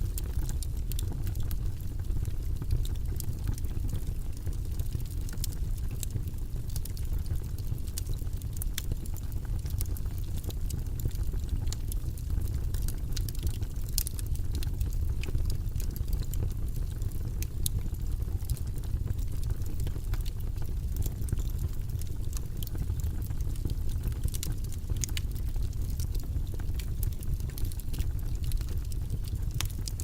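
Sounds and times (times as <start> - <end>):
low rumbling background noise: 0.0 - 30.0
faint irregular clicks: 0.1 - 1.6, 12.6 - 17.8, 23.6 - 30.0.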